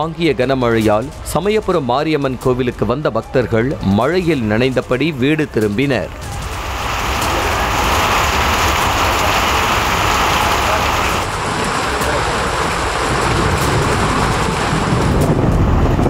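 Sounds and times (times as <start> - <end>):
heavy rain on wet street: 3.5 - 16.0.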